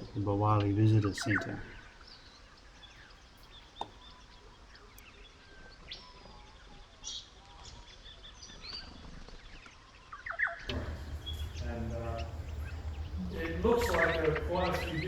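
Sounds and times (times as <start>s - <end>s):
bird calls and chirps: 10.7s - 15.0s
rising bird whistle: 10.7s - 15.0s.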